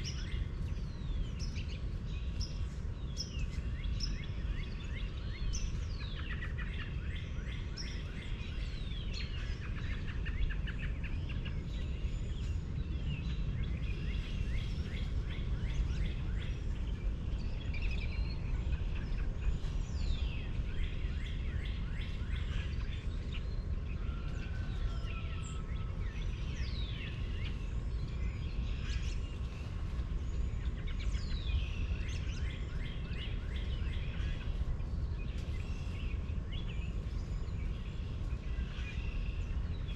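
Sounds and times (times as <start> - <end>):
birds chirping and trilling: 0.0 - 39.9
steady low rumble: 0.0 - 39.9.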